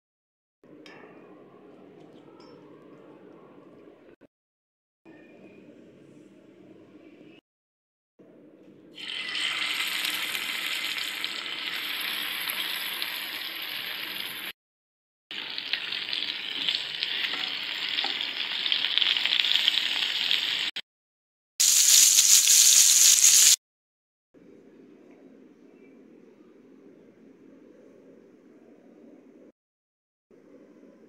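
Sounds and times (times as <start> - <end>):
meat sizzling in hot oil: 9.0 - 14.5, 15.3 - 20.8, 21.6 - 23.6.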